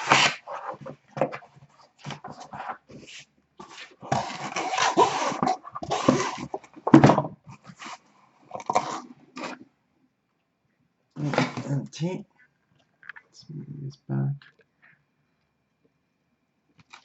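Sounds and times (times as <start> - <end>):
cardboard boxes rustling and scraping: 0.0 - 9.6, 11.2 - 11.8.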